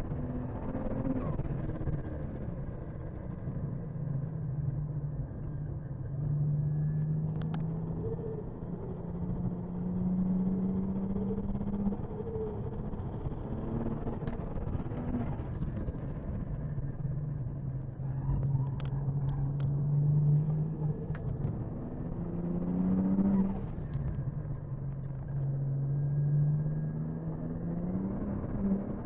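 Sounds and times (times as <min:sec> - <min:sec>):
car engine revving: 0:18.8 - 0:24.2.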